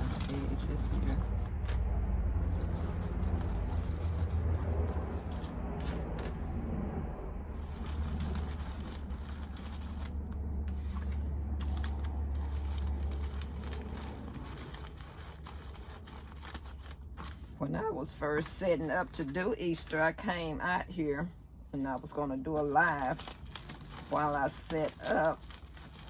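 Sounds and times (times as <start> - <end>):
paper shred crinkling and rustling: 0.0 - 6.9, 7.5 - 17.6, 21.2 - 26.0
steady low hum: 0.0 - 25.4.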